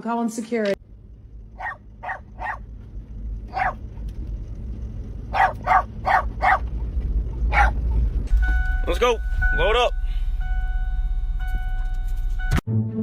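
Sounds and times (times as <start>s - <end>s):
dog barking: 1.6s - 2.6s, 3.5s - 3.8s, 5.3s - 6.7s, 7.5s - 7.8s.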